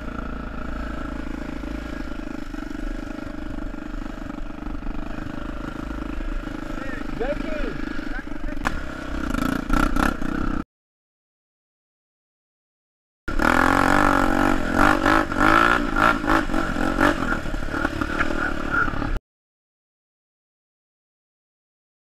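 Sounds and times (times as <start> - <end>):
dirt bike engine revving: 0.0 - 10.6, 13.3 - 19.2.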